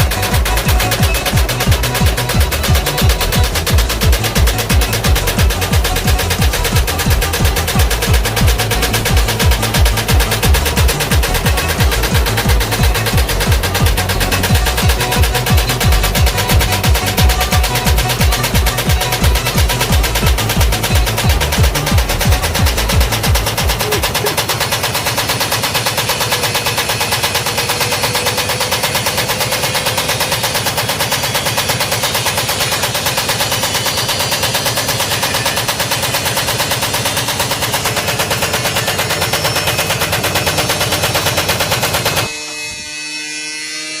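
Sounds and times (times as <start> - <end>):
steady tones: 0.0 - 35.8
washing machine loud knocking: 0.0 - 42.3.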